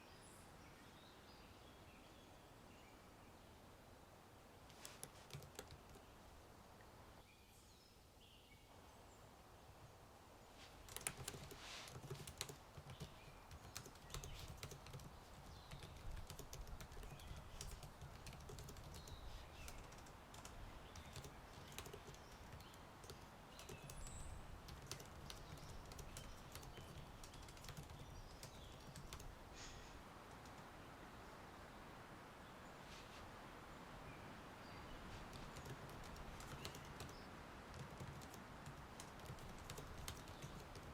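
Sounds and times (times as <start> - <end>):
typing on computer keyboard: 4.9 - 6.0, 10.9 - 24.0, 24.7 - 29.3, 35.3 - 40.9.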